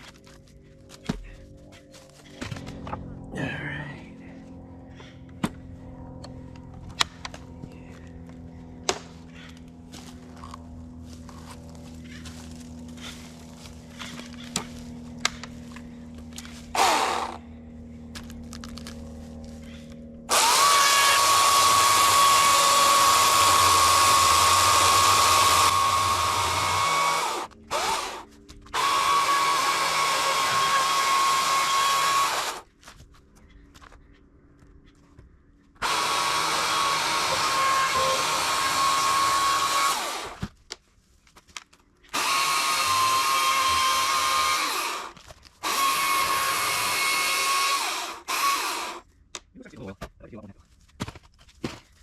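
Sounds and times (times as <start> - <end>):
leaf blower blasting: 8.9 - 17.6, 18.2 - 32.7, 35.8 - 40.4, 42.1 - 49.0.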